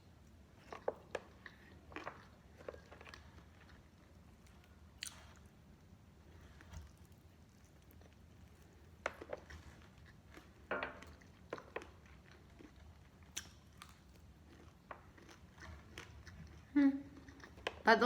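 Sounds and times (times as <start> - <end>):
wet chewing smacks and clicks: 6.4 - 17.9.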